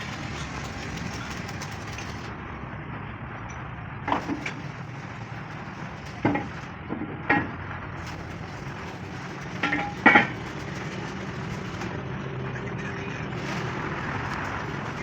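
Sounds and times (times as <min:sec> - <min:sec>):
steel plate clanking: 0:04.1 - 0:11.9.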